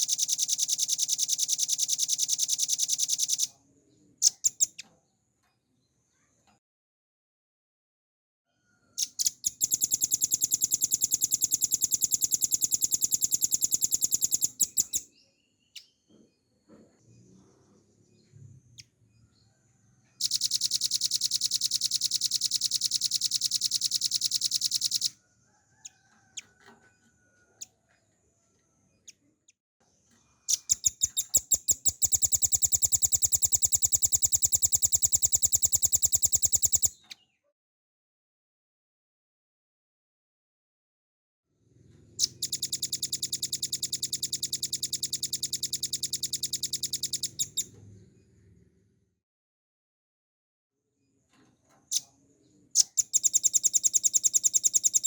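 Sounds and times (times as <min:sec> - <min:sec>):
bird singing fast trills: 0:00.0 - 0:03.6, 0:04.2 - 0:04.8, 0:09.0 - 0:16.0, 0:20.2 - 0:25.1, 0:30.5 - 0:37.1, 0:42.2 - 0:47.6, 0:52.8 - 0:55.0.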